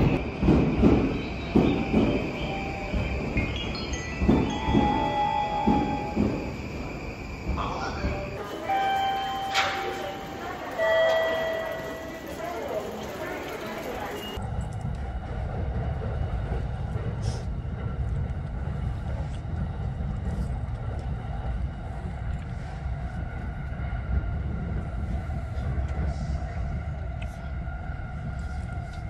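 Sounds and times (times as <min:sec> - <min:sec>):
steady low rumble: 0:14.4 - 0:29.0.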